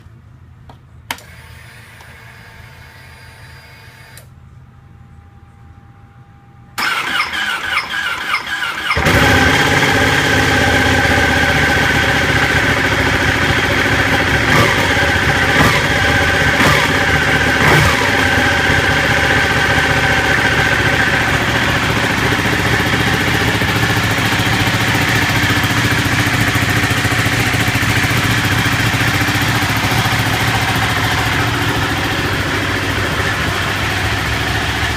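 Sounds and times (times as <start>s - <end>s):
motorcycle engine idling: 8.9s - 34.9s.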